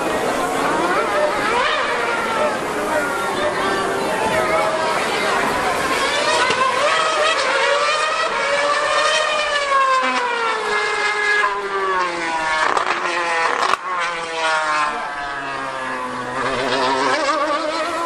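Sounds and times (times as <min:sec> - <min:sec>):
racing car engine screaming: 0:00.0 - 0:18.0
sharp crack: 0:12.6 - 0:14.0.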